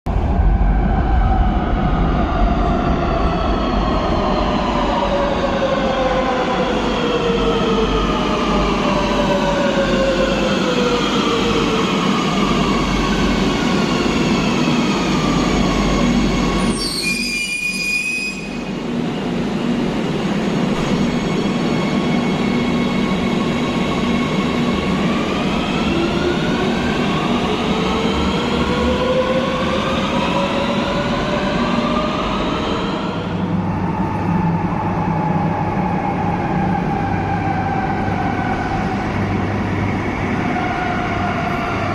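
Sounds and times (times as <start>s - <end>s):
train rumble and track noise: 0.1s - 41.9s
train brake squeal: 16.6s - 18.7s.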